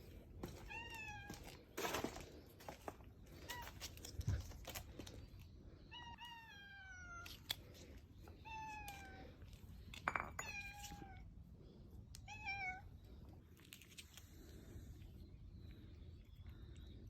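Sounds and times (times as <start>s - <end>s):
cat meowing: 12.2s - 12.9s.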